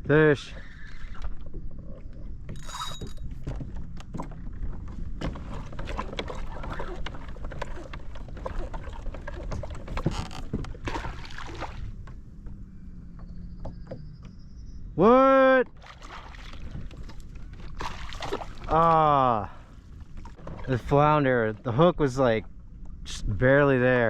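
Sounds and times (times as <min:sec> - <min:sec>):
clicks and knocks on kayak: 0:02.1 - 0:14.4
water splashing: 0:05.2 - 0:12.2, 0:15.7 - 0:21.0.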